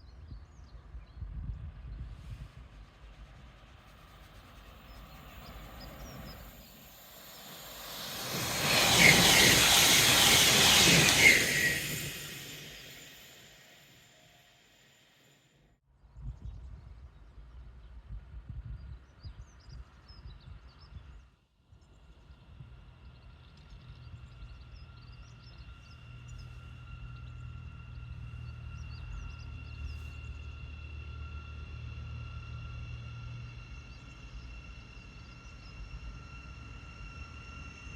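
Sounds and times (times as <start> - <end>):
train passing: 1.6 - 15.4, 22.2 - 37.9
high-pitched hum: 3.9 - 15.2.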